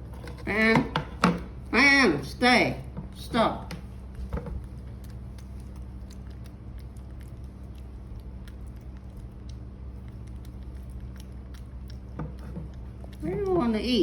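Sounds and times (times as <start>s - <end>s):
steady low hum: 0.0s - 14.0s
monkey chewing food: 2.8s - 14.0s.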